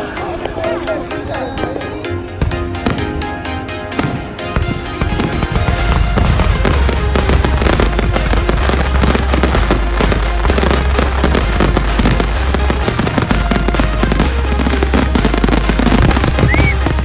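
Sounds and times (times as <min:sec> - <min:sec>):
music with heavy bass: 0:00.0 - 0:17.0
fireworks crackling and popping: 0:03.9 - 0:17.0.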